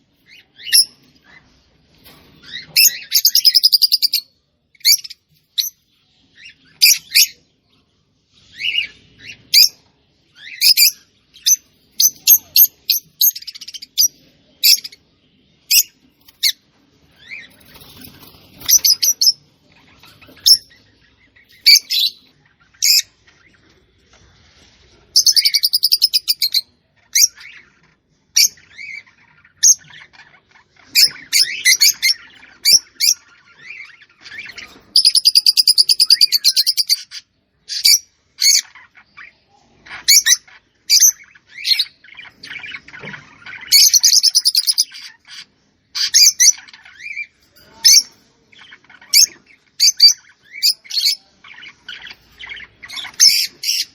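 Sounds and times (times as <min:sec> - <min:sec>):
songbird chirping: 0:00.0 - 0:53.9.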